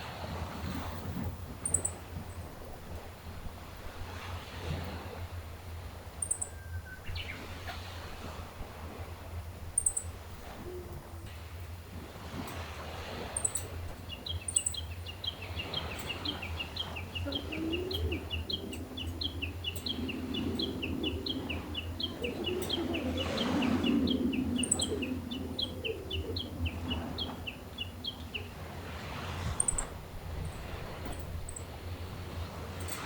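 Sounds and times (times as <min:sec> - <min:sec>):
sea waves washing on shore: 0:00.0 - 0:33.0
small bird chirping: 0:01.6 - 0:02.0, 0:06.2 - 0:07.4, 0:09.8 - 0:10.1, 0:13.4 - 0:23.2, 0:24.0 - 0:28.5, 0:29.6 - 0:31.7.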